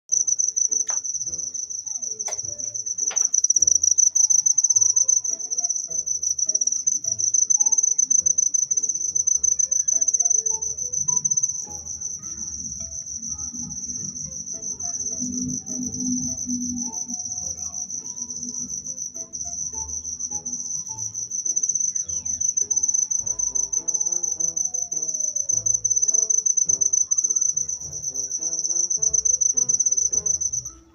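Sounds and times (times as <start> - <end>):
cricket chirping: 0.1 - 30.9.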